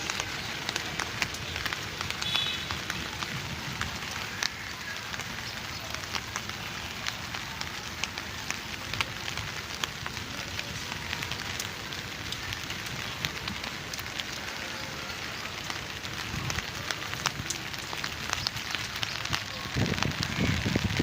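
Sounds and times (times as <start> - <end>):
rain falling: 0.0 - 21.0
raindrops ticking on surfaces: 0.0 - 21.0.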